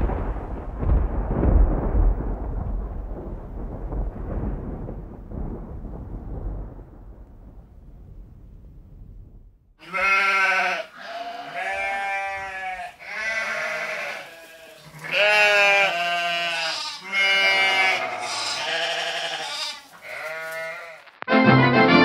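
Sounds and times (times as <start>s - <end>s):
animal bleating: 9.8s - 21.2s.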